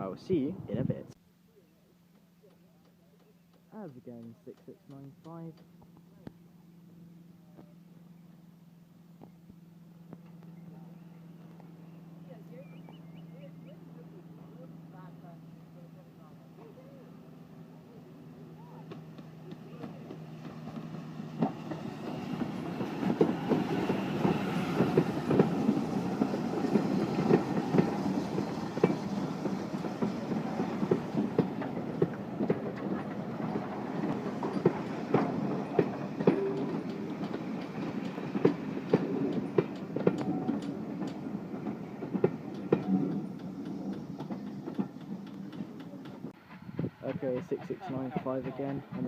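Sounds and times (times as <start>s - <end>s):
steam train running past: 9.8s - 49.0s
wheels clicking over rail joints: 18.8s - 49.0s.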